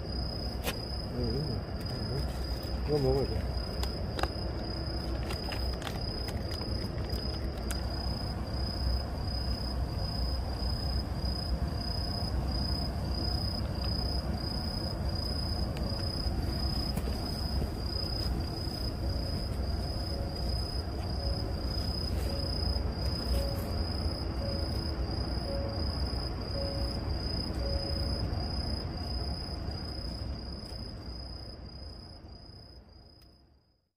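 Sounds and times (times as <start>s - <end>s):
low background rumble: 0.0s - 33.8s
crickets chirping: 0.0s - 33.9s.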